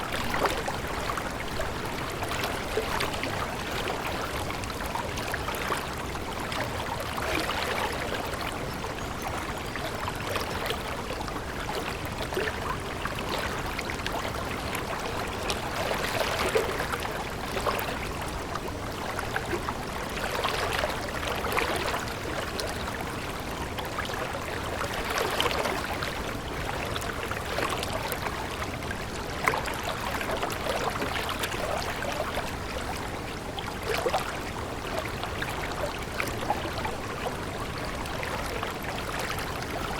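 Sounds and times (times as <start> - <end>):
stream gurgling: 0.0 - 39.9.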